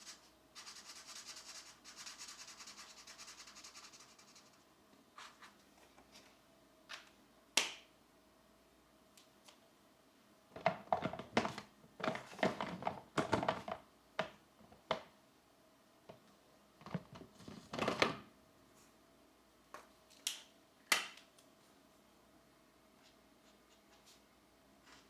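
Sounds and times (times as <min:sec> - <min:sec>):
pencils scratching on paper: 0:00.0 - 0:04.6.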